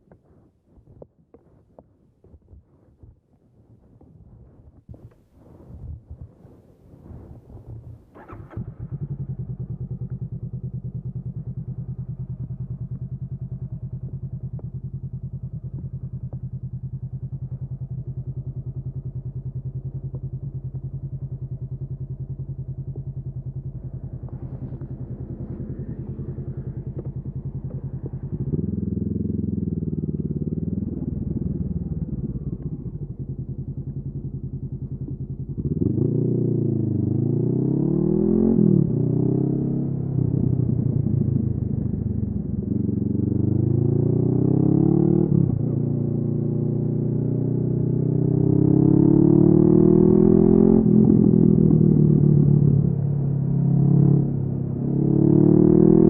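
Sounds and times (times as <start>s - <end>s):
motorcycle engine revving: 7.1s - 56.0s
motorcycle engine idling: 7.7s - 37.3s, 39.7s - 43.8s.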